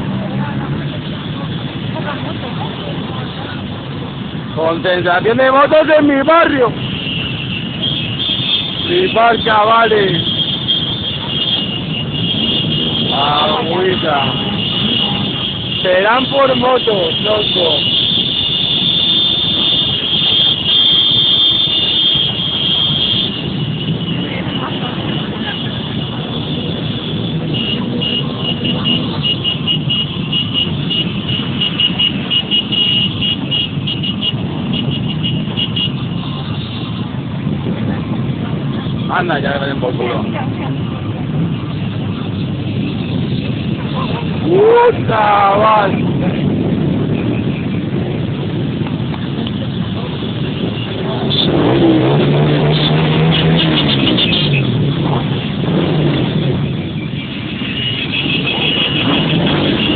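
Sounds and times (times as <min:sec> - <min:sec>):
motorcycle engines rumbling: 0:00.0 - 0:59.9.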